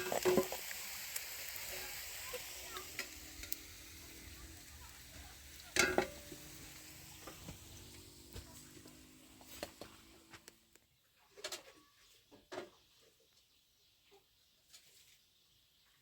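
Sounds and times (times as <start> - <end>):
faint cooking sizzle: 0.0 - 11.0.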